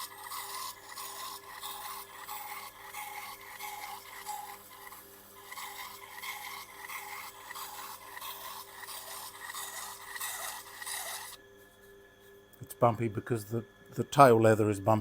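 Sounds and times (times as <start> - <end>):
knife scraping on leather: 0.0 - 11.4.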